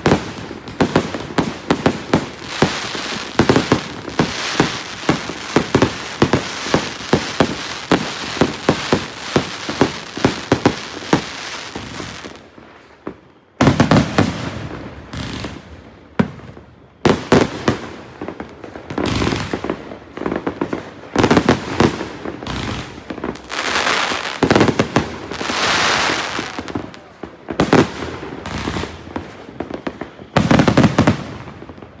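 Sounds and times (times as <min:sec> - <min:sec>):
fireworks cake shots: 0:00.0 - 0:12.5
fireworks crackling: 0:00.0 - 0:32.0.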